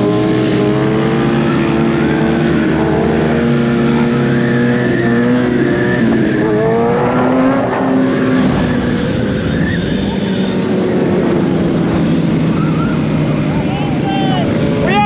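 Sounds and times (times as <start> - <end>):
motorcycle engines running: 0.0 - 4.9, 13.2 - 15.0.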